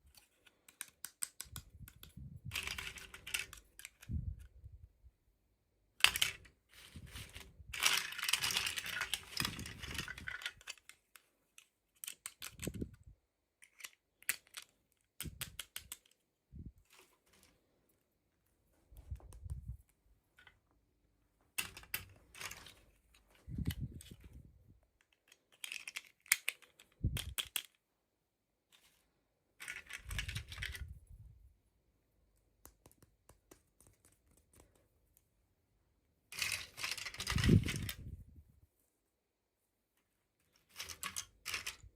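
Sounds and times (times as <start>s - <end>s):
plastic clicks and taps: 0.6s - 4.1s, 18.9s - 19.8s, 32.6s - 35.3s.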